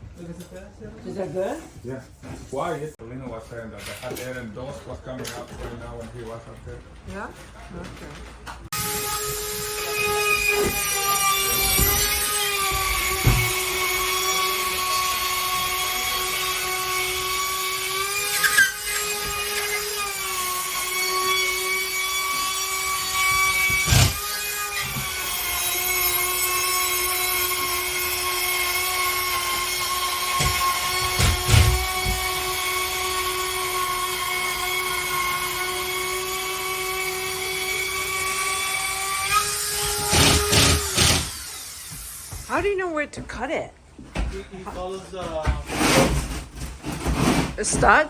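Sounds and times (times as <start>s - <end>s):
power tool motor whine: 8.7s - 42.5s.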